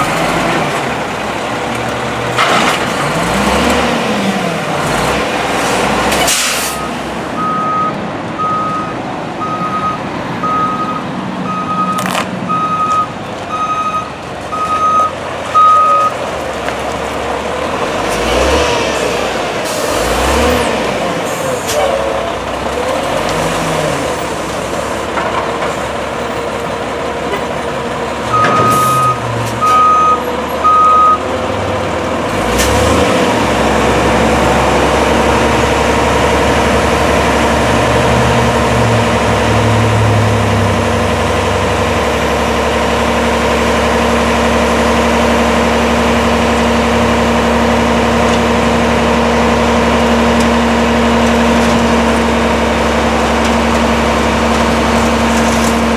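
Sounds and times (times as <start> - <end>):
diesel truck engine running: 0.0 - 55.9
back-up alarm beeping: 6.8 - 16.1, 28.3 - 31.2.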